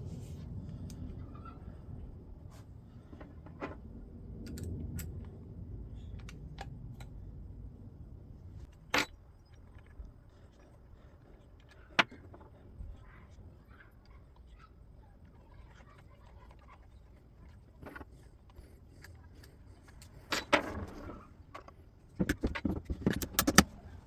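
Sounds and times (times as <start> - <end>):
low rumble: 0.0 - 8.7
things handled at a workbench: 16.7 - 23.8.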